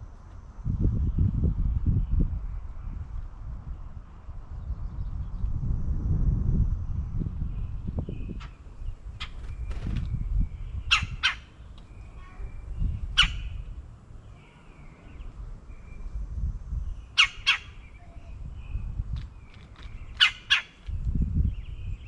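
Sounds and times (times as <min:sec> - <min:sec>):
faint bird chirps: 0:07.4 - 0:20.8
birds squawking harshly: 0:10.7 - 0:13.8, 0:17.1 - 0:18.2, 0:19.4 - 0:20.9.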